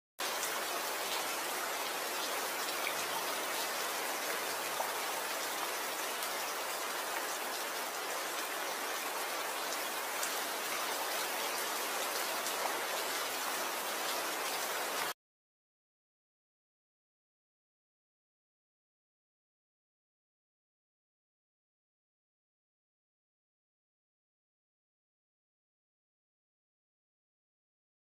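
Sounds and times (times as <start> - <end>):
rain falling: 0.2 - 15.2.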